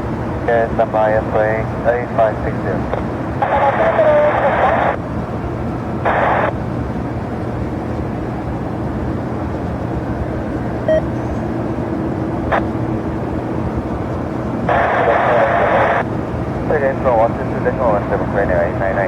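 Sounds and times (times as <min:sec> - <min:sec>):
distant jet engines rumbling: 0:00.0 - 0:19.0
radio squelch: 0:00.5 - 0:05.0, 0:06.0 - 0:06.5, 0:14.7 - 0:16.1, 0:16.7 - 0:19.0.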